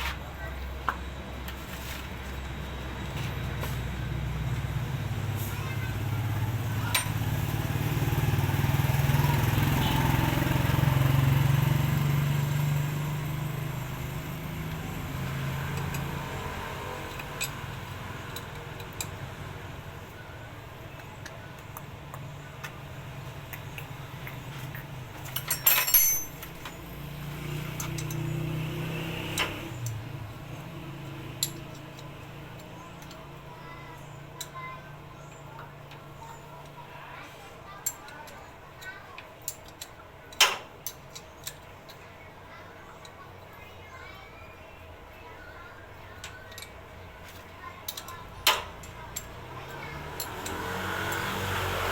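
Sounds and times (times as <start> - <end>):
engine running: 0.0 - 33.5, 48.0 - 51.9
metallic clinks and knocks: 6.9 - 7.2, 24.2 - 27.0.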